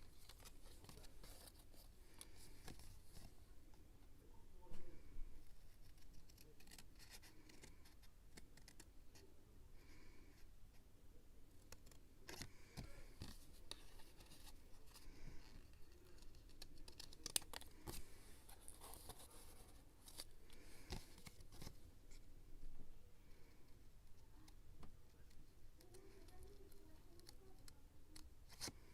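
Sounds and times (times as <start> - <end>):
paper rustling: 0.0 - 3.4, 11.7 - 21.9.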